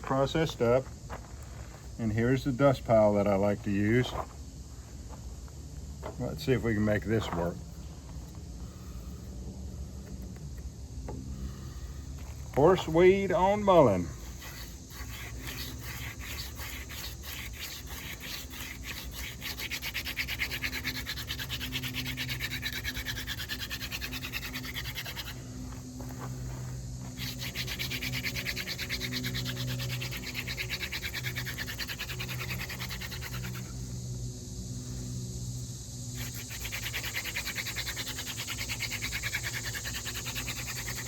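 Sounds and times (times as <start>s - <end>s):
hand drill spindle rubbing: 14.2s - 25.4s, 26.0s - 33.8s, 36.2s - 41.0s.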